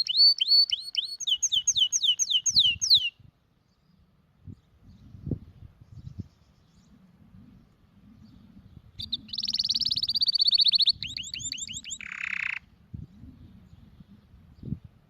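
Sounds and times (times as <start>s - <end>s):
canary singing trills: 0.0s - 3.2s, 8.3s - 13.3s.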